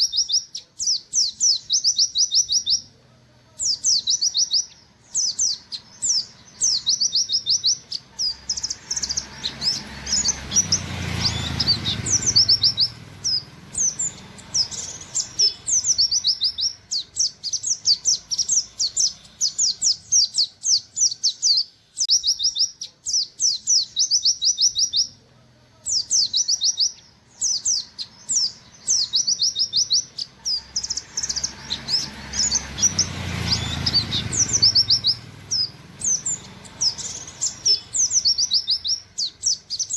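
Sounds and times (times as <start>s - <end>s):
bird singing rapid high notes: 0.0s - 3.0s, 3.6s - 25.2s, 25.8s - 39.9s.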